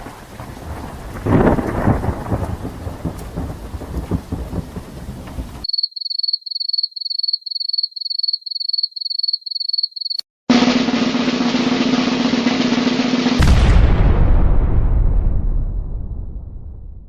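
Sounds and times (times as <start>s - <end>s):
rolling thunder rumble: 0.0s - 5.6s, 10.5s - 17.0s
rain: 0.0s - 5.7s.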